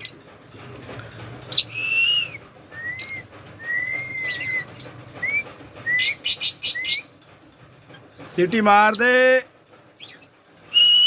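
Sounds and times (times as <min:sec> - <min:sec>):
parakeet whistling: 0:01.5 - 0:07.1.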